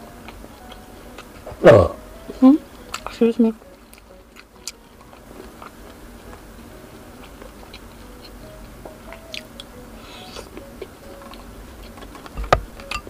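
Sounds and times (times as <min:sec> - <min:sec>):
chewing and biting: 0:03.8 - 0:08.5, 0:09.1 - 0:13.0.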